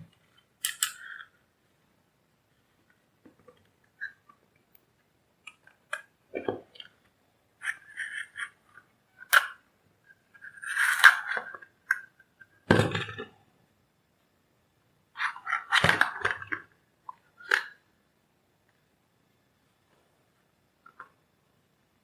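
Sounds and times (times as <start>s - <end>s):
tools clicking and scraping on bench: 0.6s - 1.3s.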